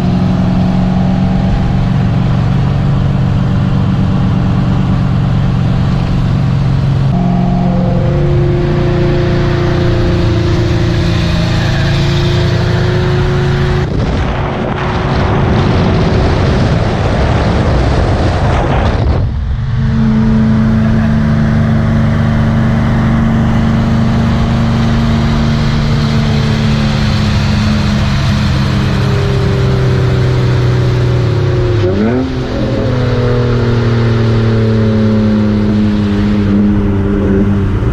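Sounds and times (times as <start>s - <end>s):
car engine running: 0.0s - 37.9s
loud rushing noise: 7.0s - 30.5s.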